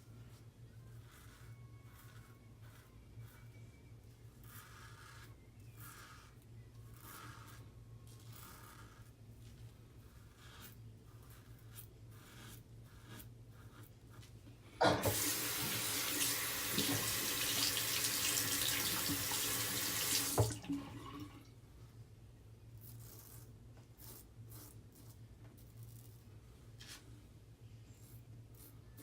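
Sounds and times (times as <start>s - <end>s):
faint scraping strokes: 0.0s - 14.8s
tap water running: 14.8s - 21.5s.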